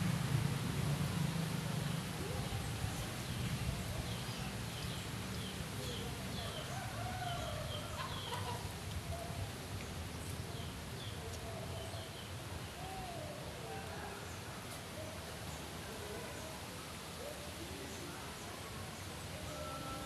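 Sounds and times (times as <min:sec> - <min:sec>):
lower wavering bird calls: 0:19.3 - 0:20.0.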